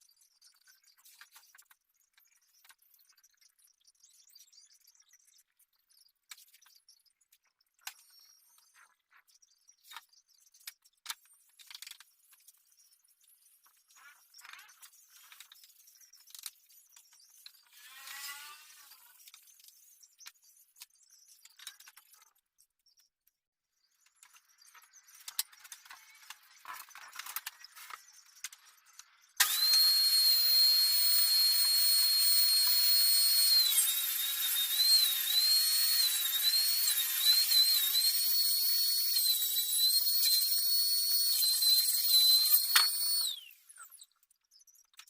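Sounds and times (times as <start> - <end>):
high-pitched power tool whine: 17.6 - 19.3, 24.2 - 44.0.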